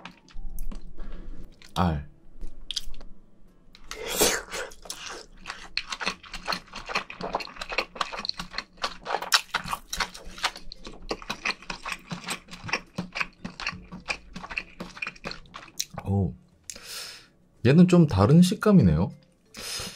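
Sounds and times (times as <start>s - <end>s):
wet chewing mouth clicks: 4.8s - 16.0s.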